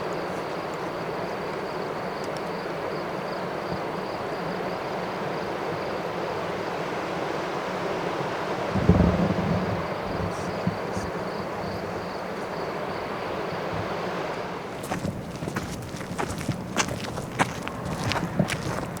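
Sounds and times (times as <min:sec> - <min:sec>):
river water rushing: 0:14.7 - 0:19.0.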